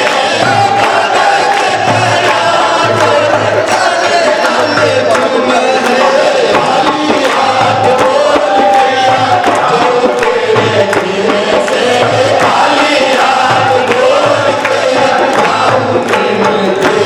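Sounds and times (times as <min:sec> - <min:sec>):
group of voices singing: 0:00.0 - 0:17.0
steady drum beat: 0:00.0 - 0:17.0.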